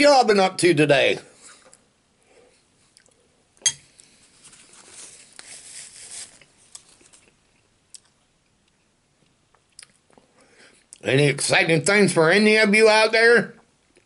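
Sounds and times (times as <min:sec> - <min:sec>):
man chewing food: 0:02.8 - 0:04.3, 0:06.4 - 0:11.0.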